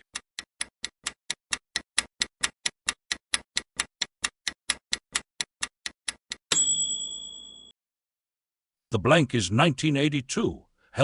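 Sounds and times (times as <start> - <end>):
fast clock ticking: 0.0 - 6.5
bright bell ding: 6.5 - 7.7.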